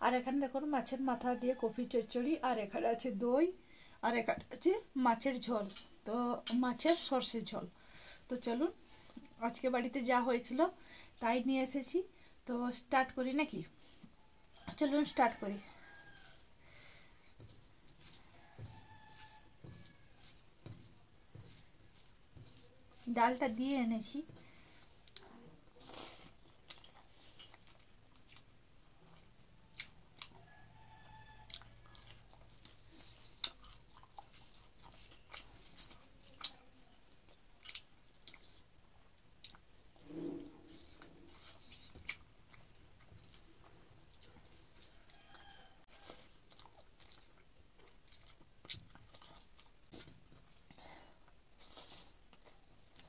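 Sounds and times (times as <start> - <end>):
person chewing food: 15.6 - 23.5, 24.2 - 40.0, 40.6 - 53.0.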